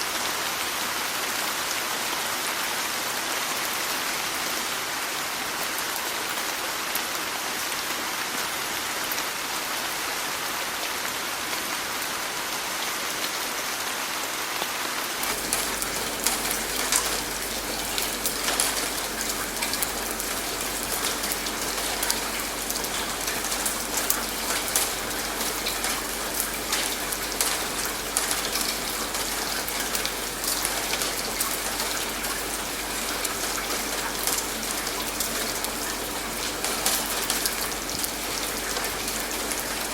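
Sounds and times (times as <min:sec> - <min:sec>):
steady rain hiss: 0:00.0 - 0:39.9
raindrops pattering: 0:15.2 - 0:39.9.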